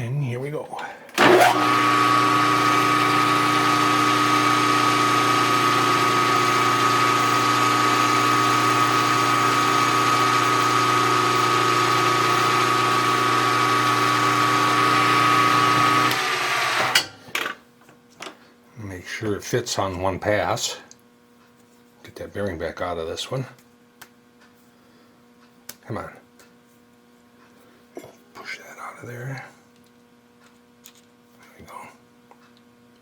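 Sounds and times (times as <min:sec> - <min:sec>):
milling machine spindle whining: 0:01.2 - 0:17.0.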